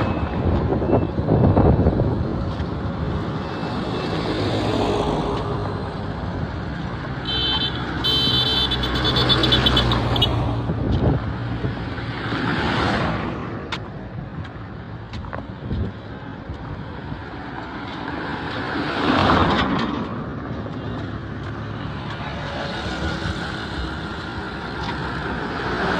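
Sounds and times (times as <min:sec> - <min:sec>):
road traffic passing: 0:00.0 - 0:25.9
high-pitched horn pulses: 0:07.2 - 0:10.3.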